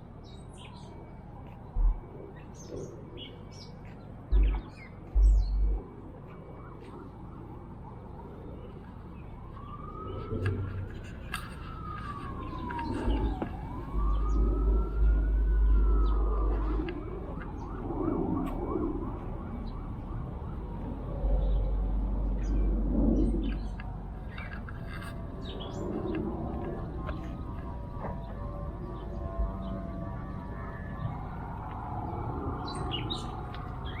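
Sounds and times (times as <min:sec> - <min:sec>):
emergency vehicle siren wailing: 0:00.0 - 0:34.0
bird chirps: 0:01.8 - 0:05.8
loud low rumbles: 0:04.3 - 0:06.0.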